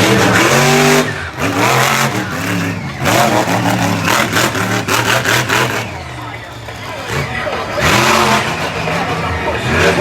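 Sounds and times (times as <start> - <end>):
truck engine revving hard: 0.0 - 10.0.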